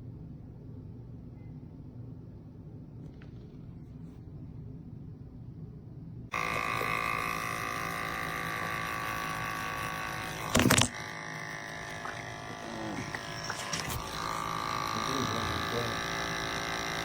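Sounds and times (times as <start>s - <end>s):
espresso machine pump buzzing: 6.3s - 17.0s.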